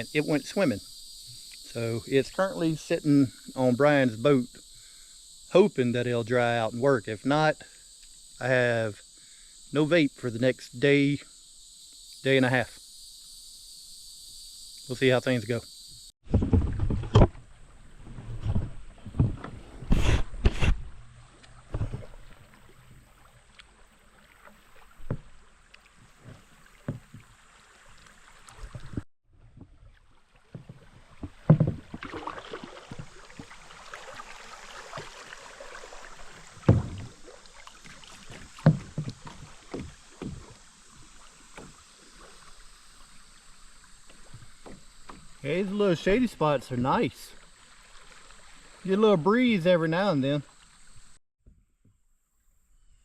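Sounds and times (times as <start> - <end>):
knocks on kayak: 16.3 - 17.4, 30.6 - 32.3, 36.6 - 37.2, 38.3 - 40.6
paddle strokes splashing: 16.3 - 51.2.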